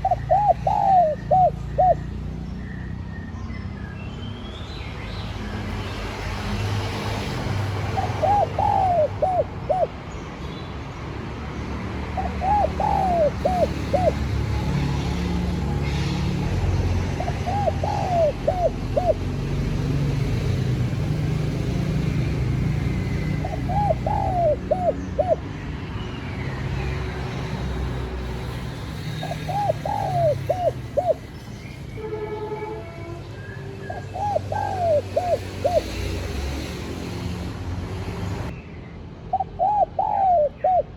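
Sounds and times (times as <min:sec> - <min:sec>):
dove cooing: 0:00.0 - 0:02.2, 0:07.7 - 0:10.0, 0:12.2 - 0:16.0, 0:17.1 - 0:19.7, 0:22.8 - 0:25.5, 0:29.2 - 0:31.3, 0:33.9 - 0:36.1, 0:39.3 - 0:40.9.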